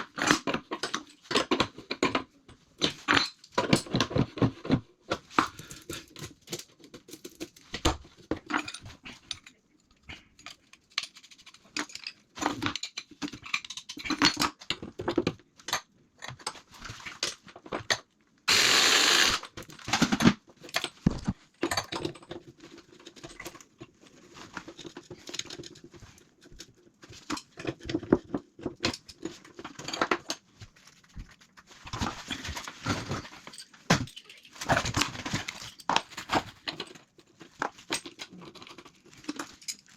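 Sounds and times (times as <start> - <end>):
tools and pipe fittings clicking: 8.5 - 14.8, 17.8 - 23.7.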